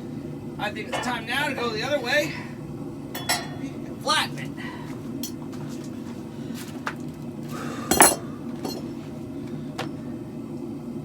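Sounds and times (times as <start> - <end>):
steady low hum: 0.0 - 11.0
hammer striking metal on anvil: 0.9 - 1.8, 3.2 - 3.7, 7.9 - 8.8.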